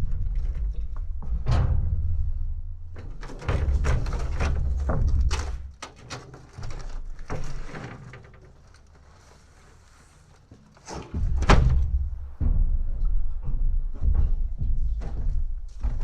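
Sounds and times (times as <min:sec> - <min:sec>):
junk thumping onto a trailer: 0:00.0 - 0:08.6, 0:10.8 - 0:12.8.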